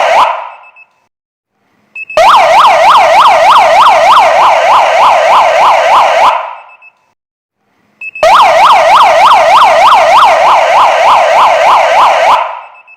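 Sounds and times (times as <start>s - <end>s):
electronic siren yelping: 0.0s - 0.8s, 2.1s - 6.8s, 8.2s - 12.9s.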